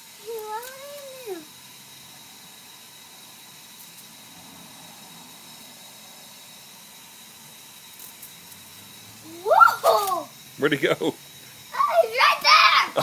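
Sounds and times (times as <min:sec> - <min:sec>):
faint steady hiss: 0:00.0 - 0:13.0
thin high tone: 0:07.9 - 0:13.0.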